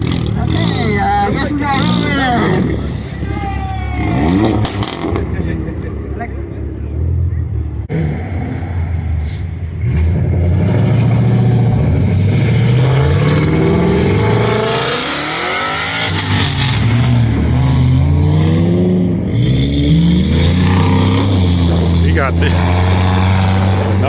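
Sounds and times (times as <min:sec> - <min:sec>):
car engine revving hard: 0:04.0 - 0:05.7, 0:09.8 - 0:24.0.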